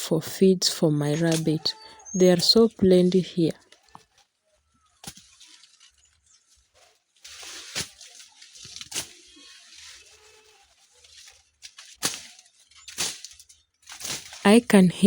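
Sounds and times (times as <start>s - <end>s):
leafy plants rustling: 1.2s - 14.6s
stems snapping: 11.0s - 14.4s.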